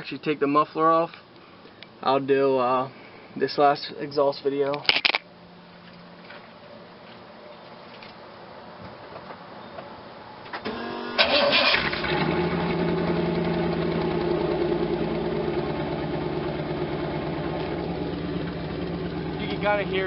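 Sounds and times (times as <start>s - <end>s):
starter motor cranking: 10.6s - 12.5s
car engine idling: 10.7s - 20.0s.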